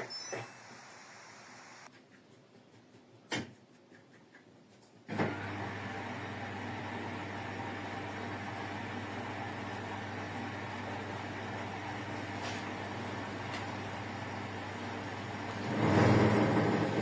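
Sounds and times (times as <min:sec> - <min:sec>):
mains hum with rushing water: 0:00.0 - 0:01.9.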